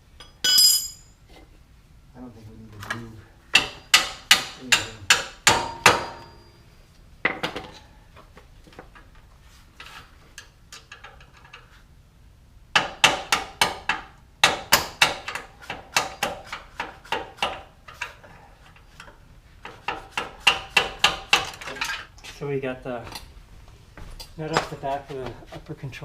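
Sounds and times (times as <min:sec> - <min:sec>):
hammer striking metal bolt: 0:03.5 - 0:06.5.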